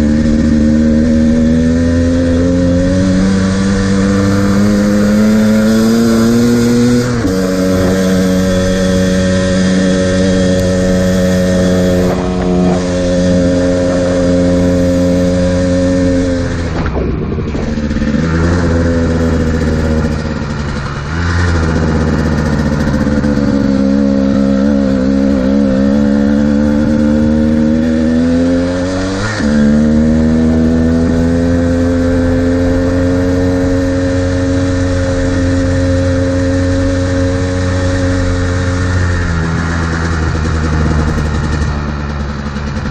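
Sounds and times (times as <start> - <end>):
two-stroke dirt bike engine: 0.0 - 42.9.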